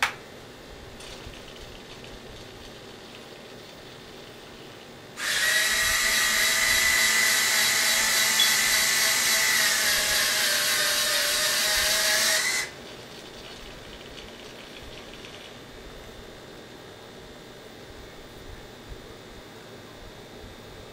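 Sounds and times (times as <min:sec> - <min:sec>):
small electric motors whining: 0:05.2 - 0:12.8.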